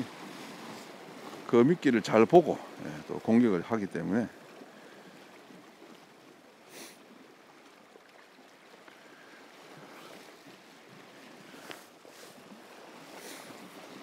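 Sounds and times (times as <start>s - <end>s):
faint waves washing on shore: 0.0s - 14.0s.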